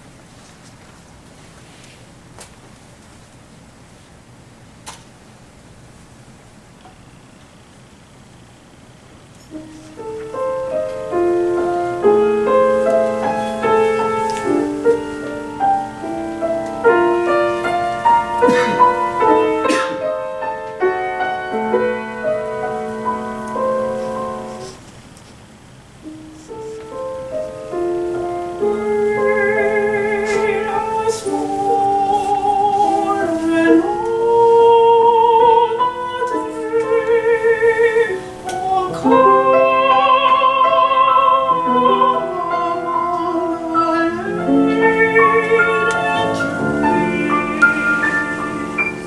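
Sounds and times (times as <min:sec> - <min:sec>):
piano accompaniment: 0:09.4 - 0:24.9, 0:25.9 - 0:49.0
woman singing classical song: 0:09.5 - 0:24.7, 0:26.5 - 0:49.0.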